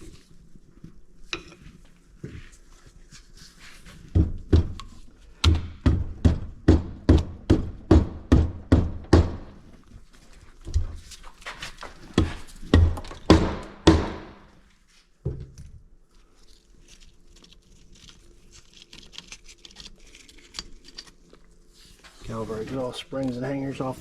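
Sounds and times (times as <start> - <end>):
hammer knocking on engine parts: 5.4 - 9.5.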